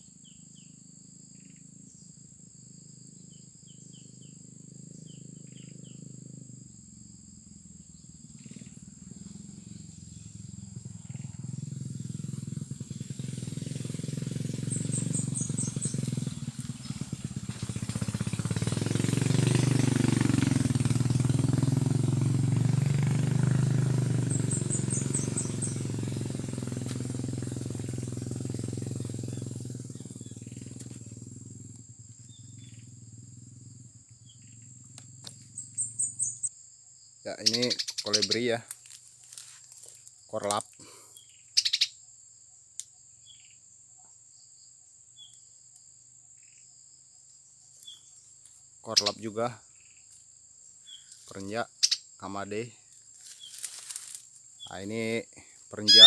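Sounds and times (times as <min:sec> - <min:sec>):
high insect drone: 0:00.0 - 0:56.0
passing vehicle engine: 0:04.7 - 0:36.4.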